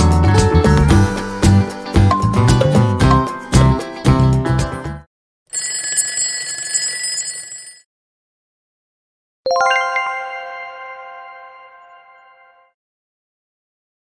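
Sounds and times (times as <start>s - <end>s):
upbeat background music: 0.0s - 5.0s.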